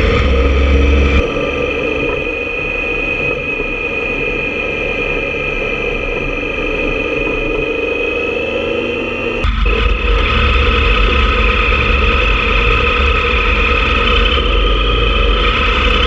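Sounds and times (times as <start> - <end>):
motorcycle engine running: 0.0 - 16.0
steady high whine: 0.0 - 16.0.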